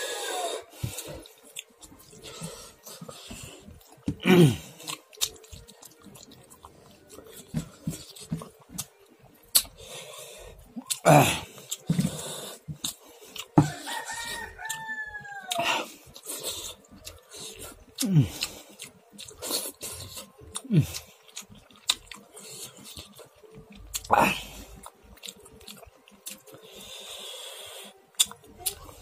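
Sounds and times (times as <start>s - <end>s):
wet chewing and lip-smacking: 0.7s - 29.0s
rooster crowing: 13.6s - 15.9s.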